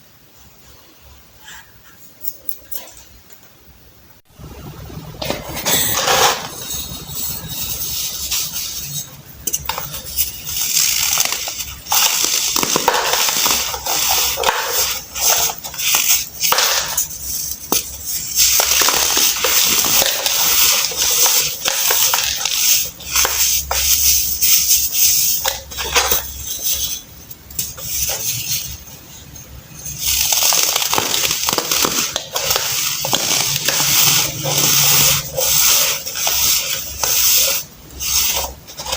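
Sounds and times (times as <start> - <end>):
baking soda crushed and crumbled: 5.6 - 29.0, 29.6 - 38.9.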